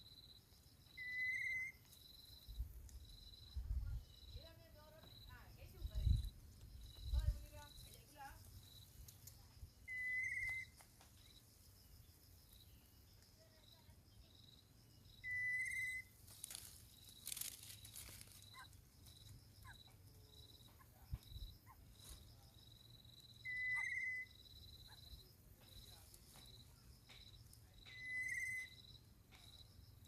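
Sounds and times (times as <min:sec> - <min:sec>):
crickets chirping: 0:00.0 - 0:30.0
flat whistle-like tones: 0:00.9 - 0:02.6, 0:09.8 - 0:11.4, 0:15.2 - 0:16.2, 0:23.4 - 0:24.6, 0:27.8 - 0:28.8.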